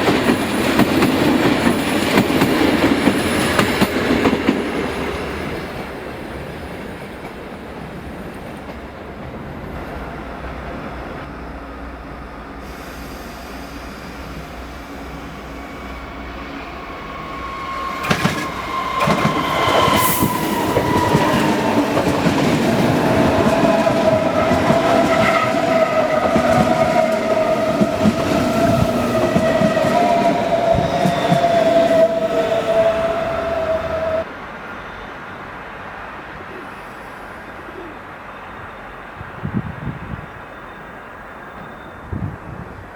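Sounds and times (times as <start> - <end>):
train wheels clacking: 0.0 - 10.7, 12.6 - 34.3
high-pitched train whine: 0.0 - 42.9.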